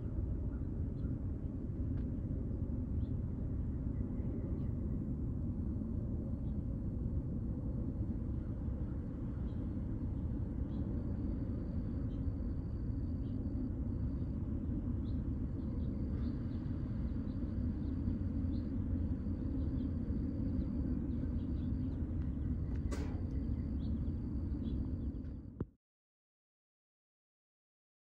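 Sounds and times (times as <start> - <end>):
low outdoor rumble: 0.0 - 25.7
sharp click: 22.7 - 23.4.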